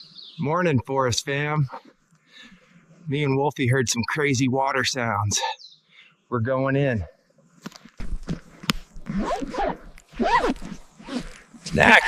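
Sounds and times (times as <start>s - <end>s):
rustling through undergrowth: 7.5s - 12.0s.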